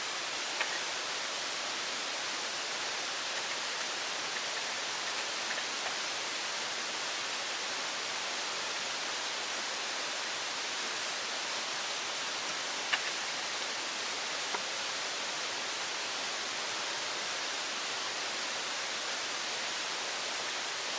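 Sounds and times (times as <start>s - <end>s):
water hissing: 0.0s - 20.9s
faint ticks: 0.4s - 1.0s.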